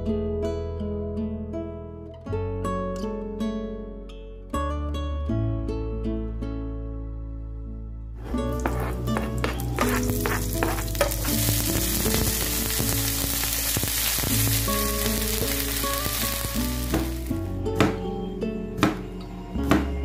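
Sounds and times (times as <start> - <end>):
background music: 5.2 - 20.0
knife strokes on cutting board: 8.2 - 11.7
vegetables sizzling in hot oil: 8.3 - 17.5.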